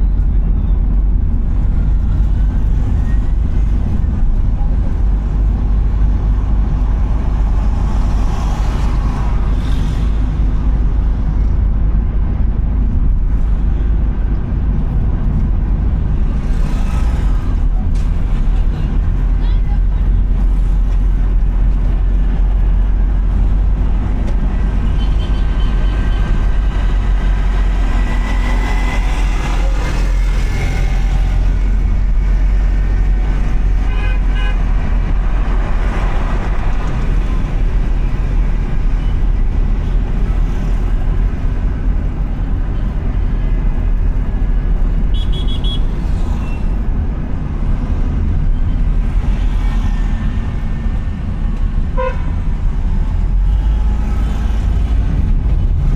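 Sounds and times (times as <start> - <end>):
car driving rumble: 0.0 - 55.9
road noise: 0.0 - 55.9
car horn toots: 33.8 - 34.7, 45.1 - 45.9, 52.0 - 52.4.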